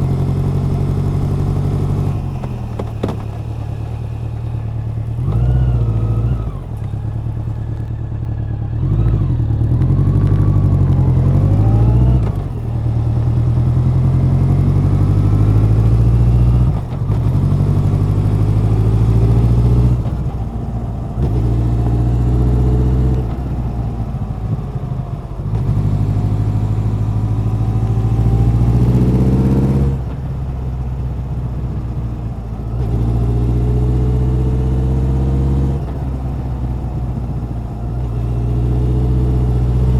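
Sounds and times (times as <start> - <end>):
motorcycle engine revving on road: 0.0 - 39.9.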